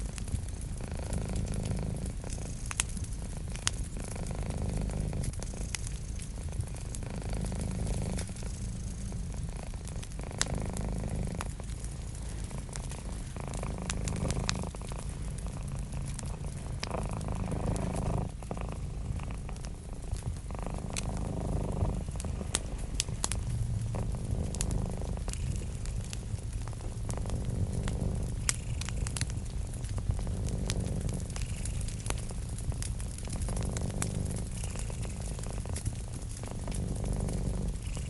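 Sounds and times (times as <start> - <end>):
cat purring: 0.0 - 38.0
wood fire crackling and popping: 0.0 - 38.0.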